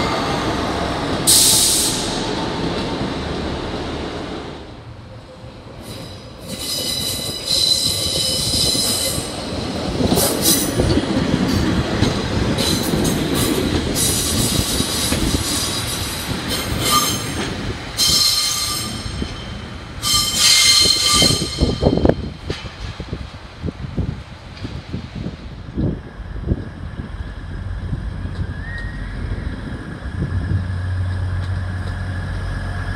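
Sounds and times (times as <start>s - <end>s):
wheels rumbling on rails: 0.0s - 32.9s
train wheels squealing: 5.8s - 9.4s, 12.6s - 22.3s, 28.4s - 30.8s.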